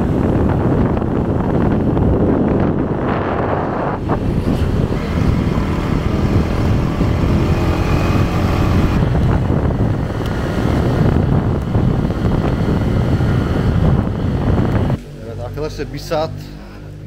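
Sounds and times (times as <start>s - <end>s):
wind buffeting microphone: 0.0s - 15.0s
motorbike engine running: 0.0s - 15.8s.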